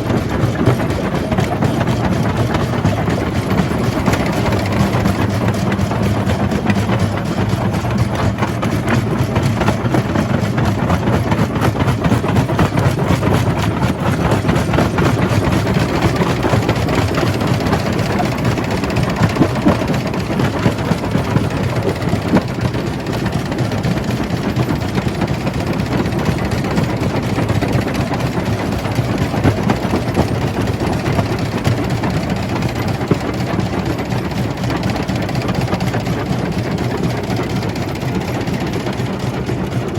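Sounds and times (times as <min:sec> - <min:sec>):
crusher machine drone: 0:00.0 - 0:39.9.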